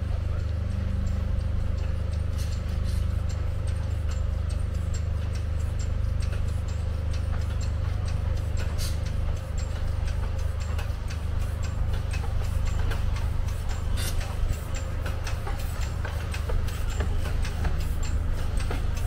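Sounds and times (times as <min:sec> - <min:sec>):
train running rumble: 0:00.0 - 0:19.0.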